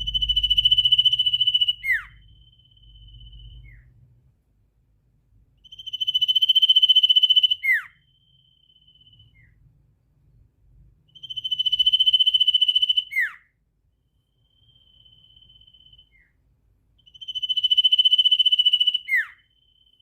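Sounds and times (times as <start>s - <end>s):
songbird trilling: 0.0s - 3.9s, 5.6s - 9.5s, 11.1s - 13.4s, 17.0s - 20.0s
faint thin steady whistle: 0.0s - 4.2s, 5.6s - 9.9s, 10.7s - 20.0s.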